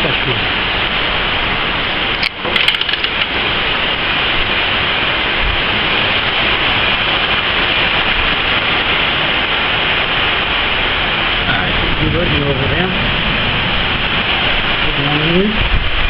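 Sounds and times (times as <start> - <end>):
heavy rain pouring: 0.0 - 16.0
crackle of clicks: 2.2 - 3.3.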